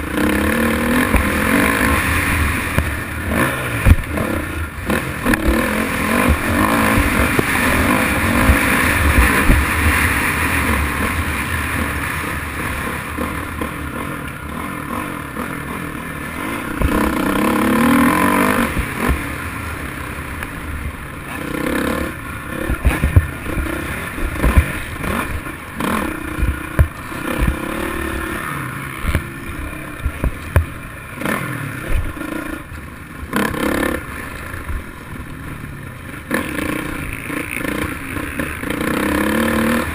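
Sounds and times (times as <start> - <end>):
dirt bike engine revving: 0.0 - 39.9
knocks and clatter: 22.6 - 25.4.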